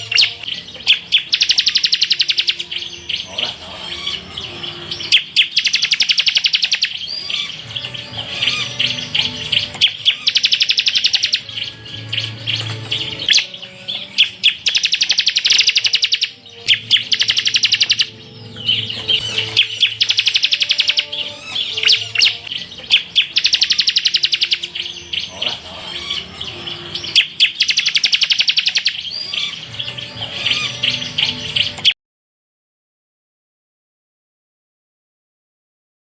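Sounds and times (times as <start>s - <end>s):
bird chattering chirps: 0.0s - 32.0s
bird rapid pulsed trills: 0.0s - 32.0s.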